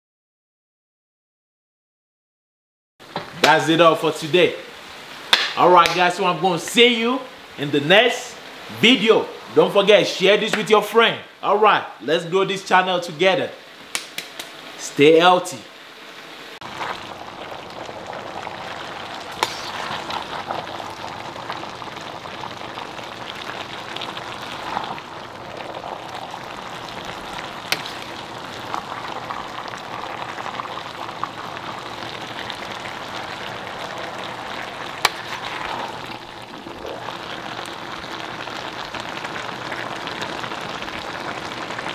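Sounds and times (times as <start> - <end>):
sharp pops: 3.1 - 3.7, 5.3 - 6.1, 13.9 - 14.6, 19.3 - 20.4, 27.6 - 28.3, 35.0 - 36.2
stir-fry sizzling in a frying pan: 16.1 - 41.9.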